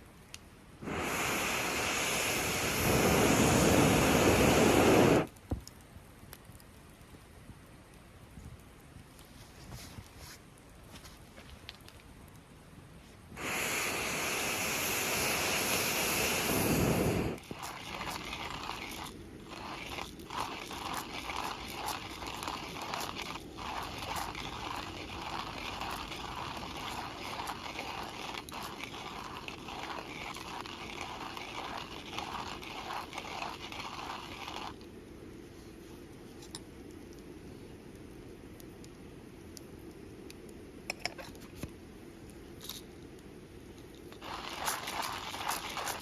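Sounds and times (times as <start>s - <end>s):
campfire crackling and popping: 0.1s - 9.2s, 11.5s - 12.6s, 13.4s - 35.4s, 43.9s - 46.0s.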